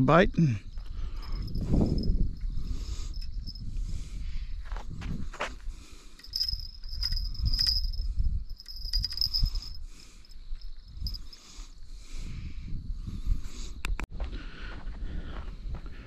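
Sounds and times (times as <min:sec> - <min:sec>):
insect trilling: 0:00.6 - 0:03.7, 0:06.2 - 0:11.8.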